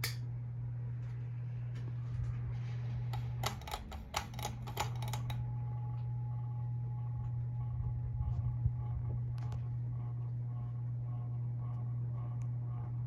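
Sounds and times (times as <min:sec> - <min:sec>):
ceiling fan motor humming: 0:00.0 - 0:13.0
sharp clicks: 0:03.2 - 0:05.4.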